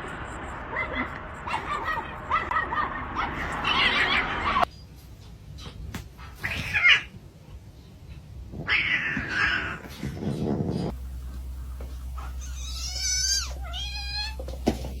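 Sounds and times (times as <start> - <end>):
low steady hum: 10.4 - 15.0.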